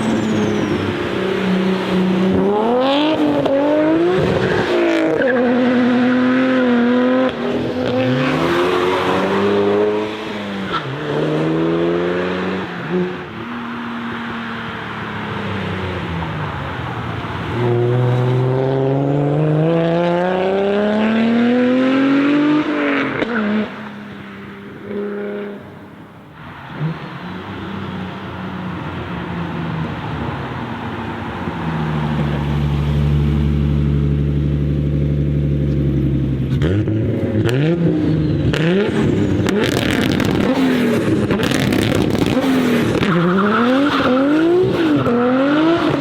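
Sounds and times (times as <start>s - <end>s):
car engine accelerating: 0.0s - 30.6s, 31.3s - 46.0s
exhaust pop: 38.5s - 43.2s.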